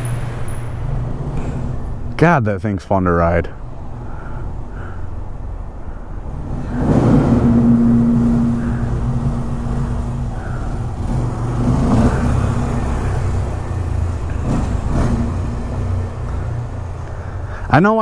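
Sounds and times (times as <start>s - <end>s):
motorcycle engine revving: 5.9s - 17.4s.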